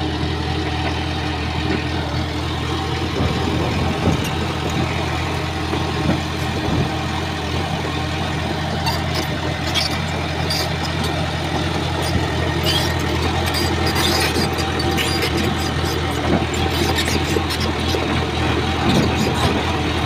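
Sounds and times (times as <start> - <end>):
bulldozer diesel engine humming: 0.0 - 20.0
high-pitched clicks and squeaks: 8.7 - 11.2, 11.9 - 18.1.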